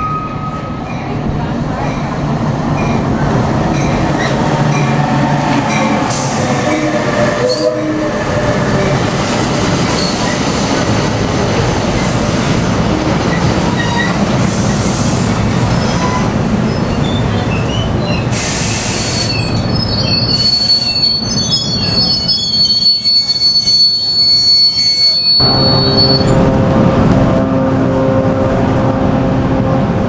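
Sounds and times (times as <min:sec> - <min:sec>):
train coaches rumbling on rails: 0:00.0 - 0:30.0
high-pitched brake squeal: 0:15.8 - 0:26.4.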